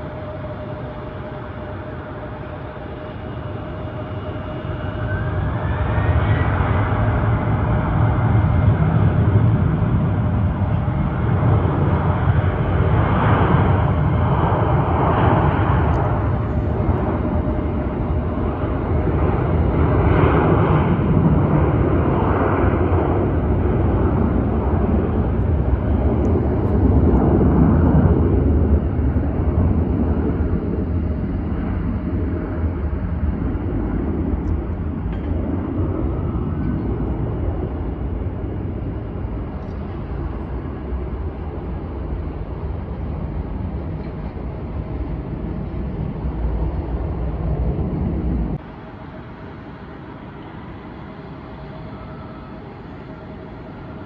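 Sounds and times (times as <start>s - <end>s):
jet engines rumbling: 0.0s - 54.0s
faint steady whine: 48.6s - 54.0s.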